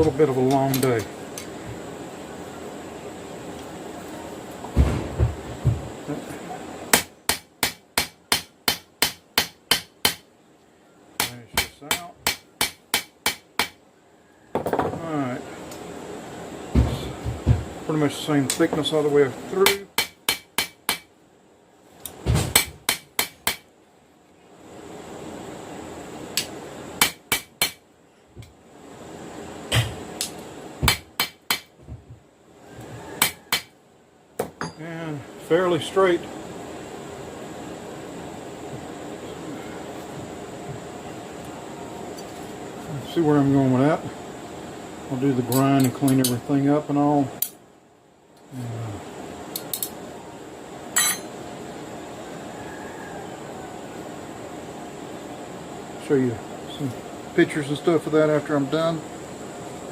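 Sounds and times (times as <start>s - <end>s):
steady hum: 0.0s - 59.9s
hammer ringing on anvil: 34.6s - 34.8s, 51.0s - 51.3s.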